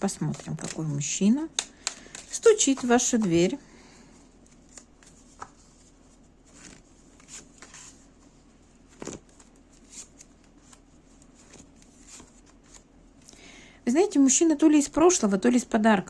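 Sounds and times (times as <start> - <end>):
cards shuffled and laid out: 0.2 - 0.8, 1.5 - 3.4, 6.5 - 8.0, 8.9 - 12.8.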